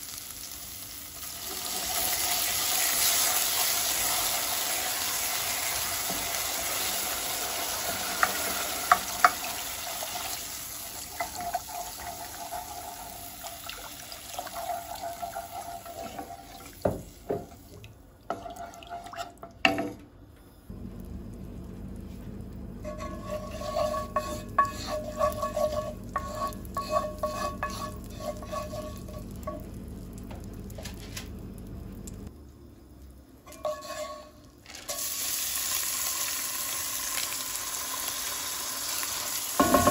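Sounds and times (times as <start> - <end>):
food sizzling in a pan: 0.0 - 19.0, 20.9 - 32.0, 33.5 - 39.9
low steady hum: 20.0 - 34.6
utensil scraping cookware: 22.8 - 29.6, 33.5 - 35.0.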